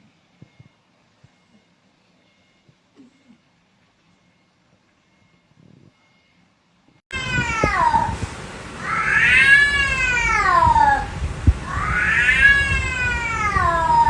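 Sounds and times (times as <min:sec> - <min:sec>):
cat yowling: 0:07.1 - 0:08.2, 0:08.8 - 0:14.0
low background rumble: 0:07.1 - 0:14.0.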